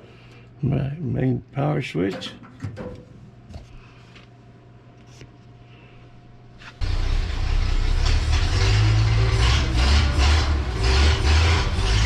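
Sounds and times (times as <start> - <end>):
hot rod engine starting and running: 6.8 - 12.0.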